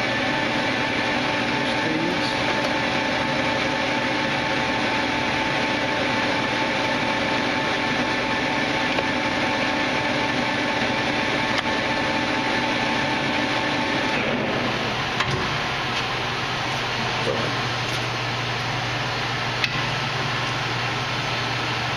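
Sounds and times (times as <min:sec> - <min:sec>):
lathe running: 0:00.0 - 0:21.9.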